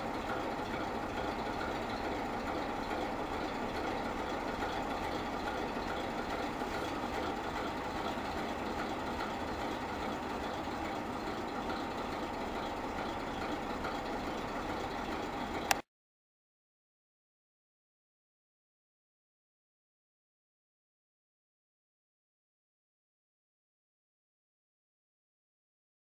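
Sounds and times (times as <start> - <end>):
diesel locomotive engine running: 0.0 - 15.8.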